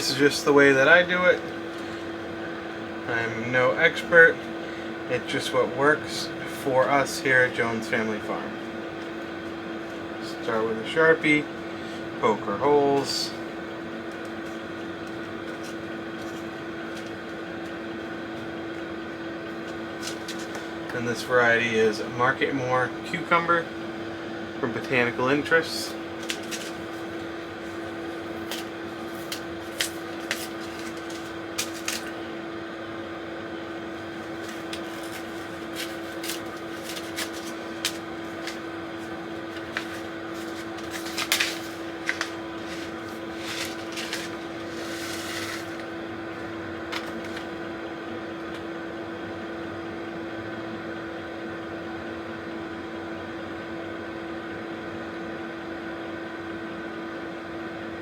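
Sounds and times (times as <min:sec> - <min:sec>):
steady hum with constant tone: 0:00.0 - 0:58.0.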